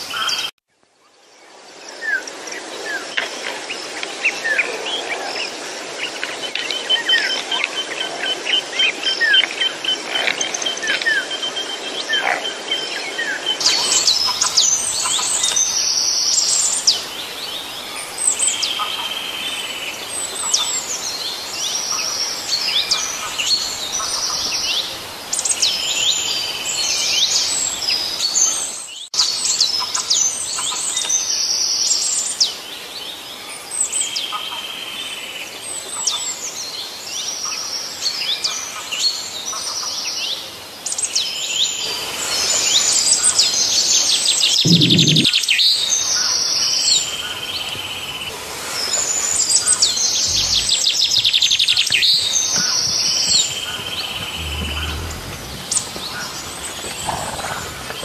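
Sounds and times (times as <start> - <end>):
small birds chirping and trilling: 42.5 - 58.0.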